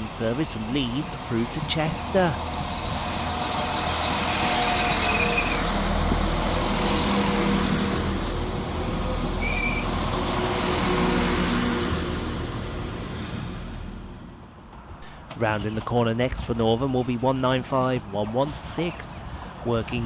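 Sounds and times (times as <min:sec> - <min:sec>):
diesel train engine humming: 0:00.0 - 0:20.0
train wheels on rails: 0:00.0 - 0:20.0
high squeal: 0:03.5 - 0:05.8, 0:09.4 - 0:10.0.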